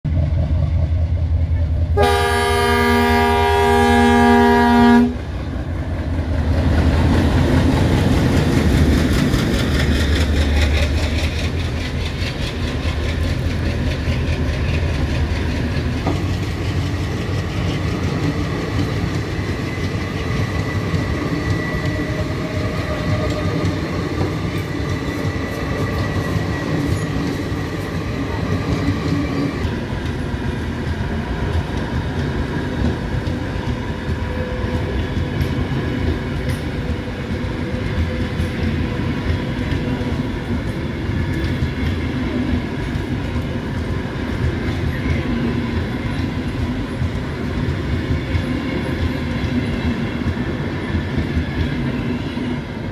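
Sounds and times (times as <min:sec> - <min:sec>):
locomotive horn blowing: 0:02.0 - 0:05.2
train wheels clattering: 0:05.2 - 0:52.9.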